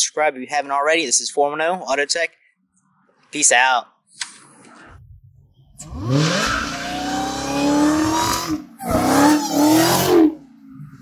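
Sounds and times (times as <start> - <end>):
car engine accelerating hard: 5.8 - 11.0.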